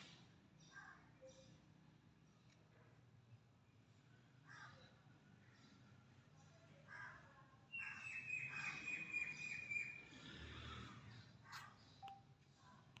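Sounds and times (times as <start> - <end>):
bird chirping: 7.7 - 10.3.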